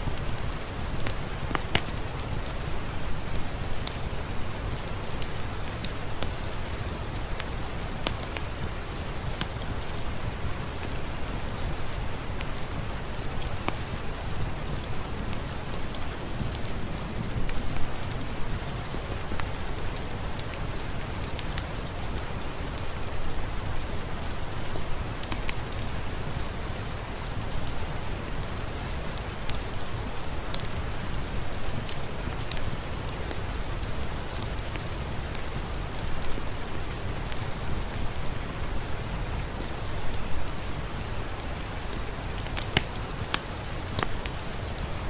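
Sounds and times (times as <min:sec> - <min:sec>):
heavy rain hiss: 0:00.0 - 0:45.0
sharp ticks and crackles: 0:00.1 - 0:02.7, 0:04.6 - 0:12.7, 0:37.2 - 0:44.9.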